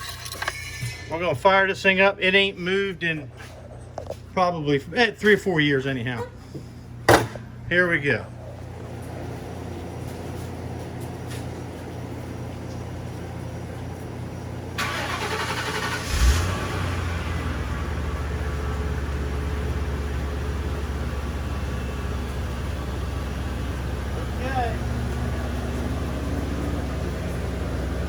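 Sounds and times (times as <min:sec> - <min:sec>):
car engine starting and idling: 0:14.4 - 0:28.0
starter motor cranking: 0:14.8 - 0:17.3.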